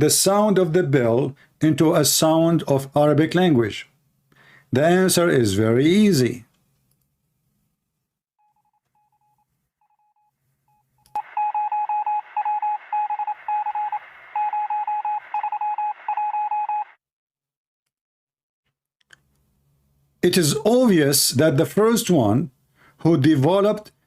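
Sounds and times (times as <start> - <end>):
click: 6.5 - 7.1
morse code beeps: 11.2 - 17.0
radio hiss: 12.2 - 14.5.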